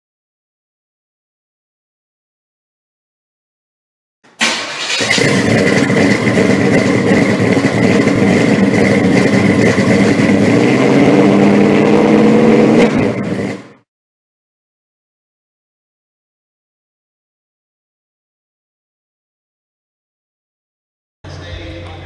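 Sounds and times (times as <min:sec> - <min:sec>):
car engine starting and running: 0:04.3 - 0:13.9.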